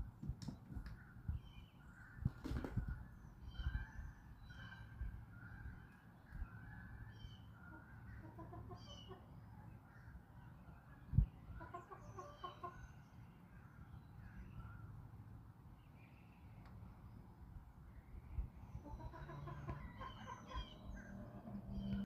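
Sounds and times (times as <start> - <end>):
small birds chirping: 0.3 - 22.0
chickens clucking softly: 7.6 - 9.4, 11.0 - 13.0, 18.8 - 22.0.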